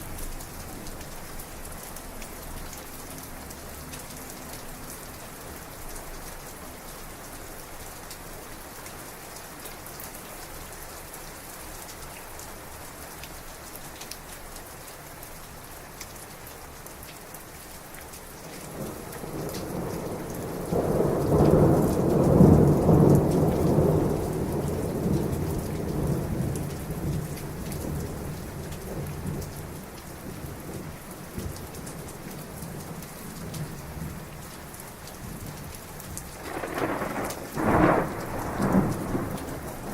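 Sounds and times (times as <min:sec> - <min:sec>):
heavy rain pattering: 0:00.0 - 0:39.9
thunder rumbling: 0:36.4 - 0:39.9.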